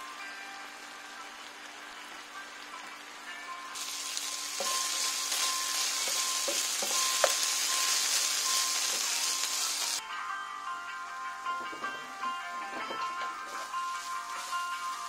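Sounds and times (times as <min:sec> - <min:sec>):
chicken sizzling in a pan: 0:00.0 - 0:10.0, 0:13.4 - 0:15.0.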